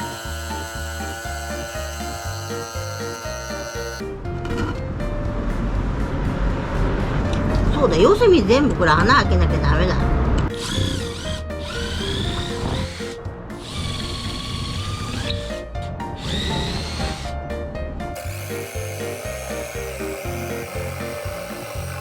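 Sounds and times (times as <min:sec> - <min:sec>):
power drill boring wood: 0:00.0 - 0:04.0, 0:10.5 - 0:15.6, 0:16.2 - 0:17.3, 0:18.2 - 0:22.0
background music: 0:00.0 - 0:22.0.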